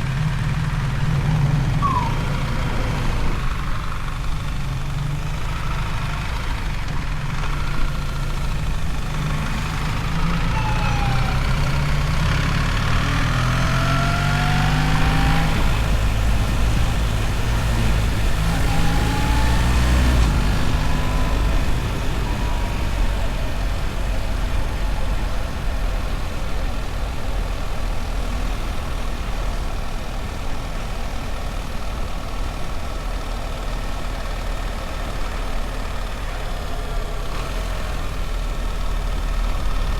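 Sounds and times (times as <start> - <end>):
motorcycle engine accelerating: 0.0 - 39.9
road noise: 0.0 - 39.9.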